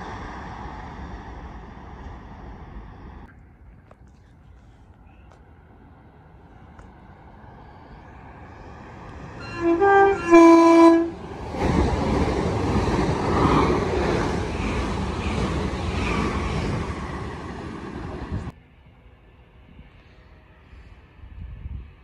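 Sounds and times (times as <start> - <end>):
train passing at speed: 0.0 - 3.3, 5.4 - 22.0
train horn blasts: 9.4 - 11.2.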